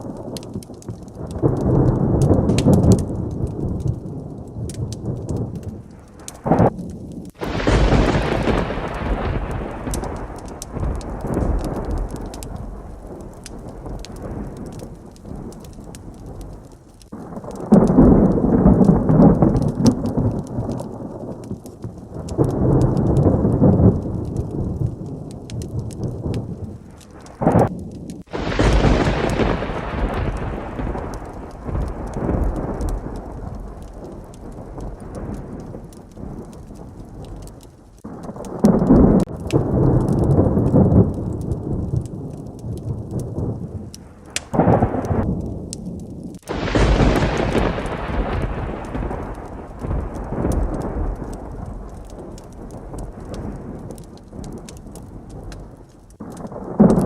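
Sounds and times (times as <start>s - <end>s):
close thunderclap: 0.0s - 57.0s
heavy rain: 0.0s - 57.0s
thunder rolling: 0.0s - 57.0s.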